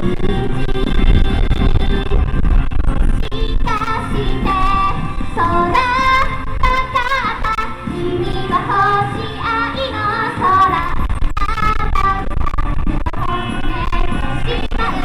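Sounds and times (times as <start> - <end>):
wind buffeting microphone: 0.0 - 15.0
amplified pop music: 3.1 - 15.0
woman singing: 3.2 - 11.0, 13.2 - 15.0.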